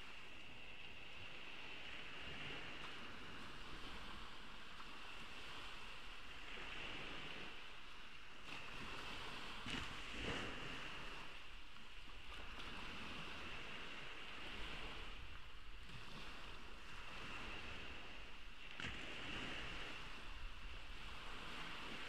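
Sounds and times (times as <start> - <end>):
small waves washing on sand: 0.0 - 22.0.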